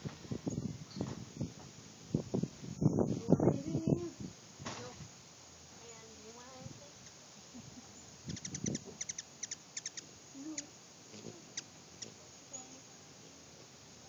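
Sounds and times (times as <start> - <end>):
wind buffeting microphone: 0.0 - 5.1, 8.2 - 9.2
hummingbird chip notes: 8.0 - 13.1.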